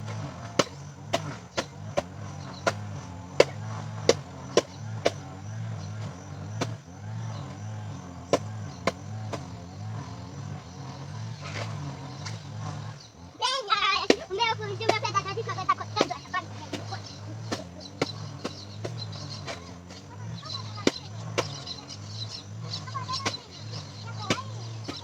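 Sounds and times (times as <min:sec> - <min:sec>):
sharp chopping knocks: 0:00.0 - 0:05.4, 0:06.6 - 0:06.8, 0:08.3 - 0:09.6, 0:15.9 - 0:21.8, 0:23.2 - 0:25.0.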